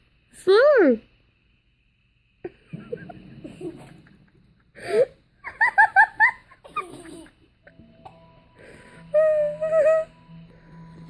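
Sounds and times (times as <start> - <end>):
person laughing: 2.5 - 7.5.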